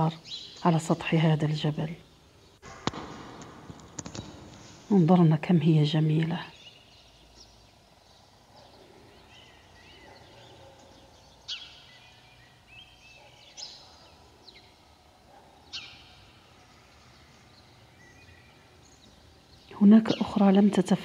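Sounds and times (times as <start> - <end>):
soft bird chirps: 5.9 - 21.0.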